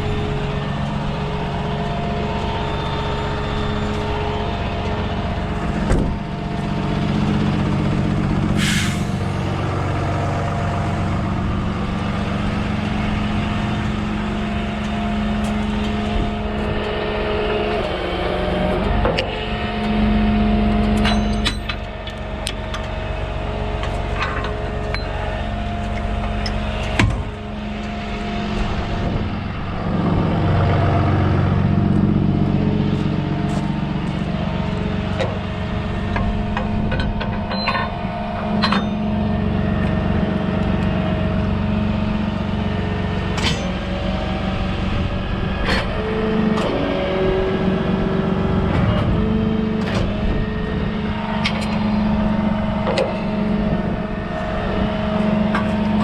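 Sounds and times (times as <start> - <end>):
vehicle engine running: 0.0 - 56.0
sharp metallic clanks: 20.9 - 22.6, 36.1 - 39.2.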